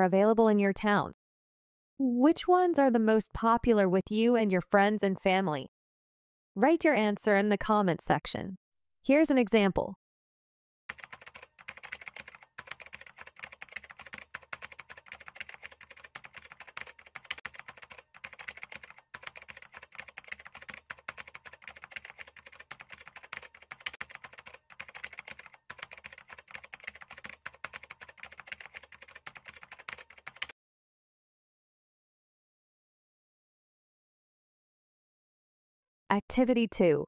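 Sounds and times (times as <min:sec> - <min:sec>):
fast typing on keyboard: 0:10.9 - 0:30.6.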